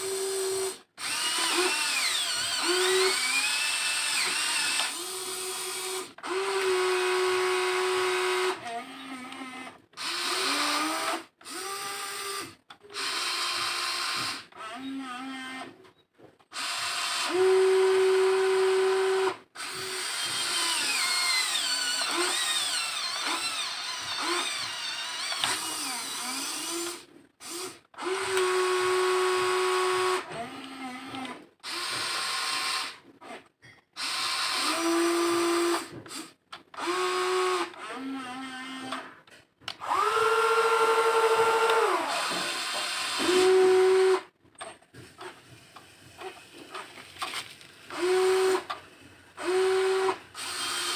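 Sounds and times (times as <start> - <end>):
small electric motors whining: 39.8 - 44.3.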